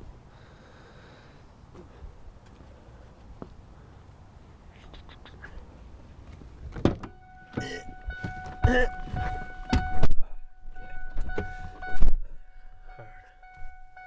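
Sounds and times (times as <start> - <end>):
knocks and heavy thump: 6.7 - 10.2, 11.0 - 12.2
steady electronic tone: 7.1 - 14.0
person grunting: 7.6 - 7.9.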